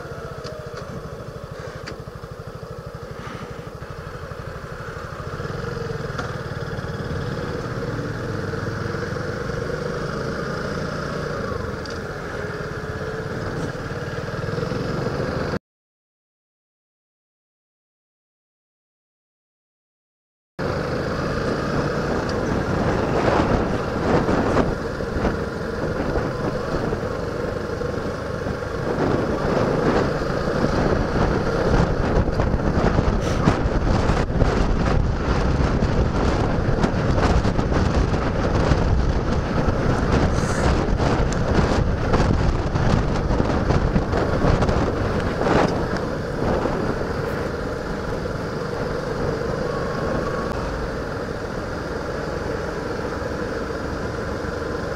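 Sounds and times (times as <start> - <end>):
motorcycle engine running: 0.0 - 15.6, 20.6 - 54.9
wind rushing over microphone: 21.0 - 54.9.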